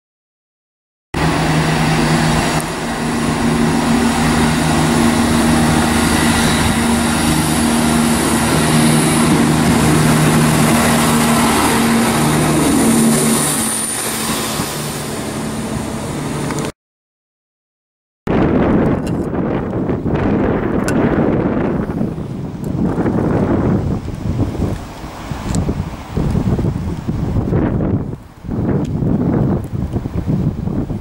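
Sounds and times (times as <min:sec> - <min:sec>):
diesel engine drone: 0:01.2 - 0:16.7
wheels rushing on rail: 0:01.2 - 0:16.7, 0:18.5 - 0:31.0.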